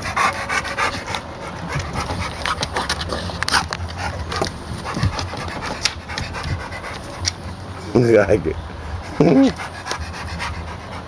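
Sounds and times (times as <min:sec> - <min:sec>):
dogs vocalizing: 0:00.0 - 0:11.0
sharp scuffling clicks: 0:01.1 - 0:07.5.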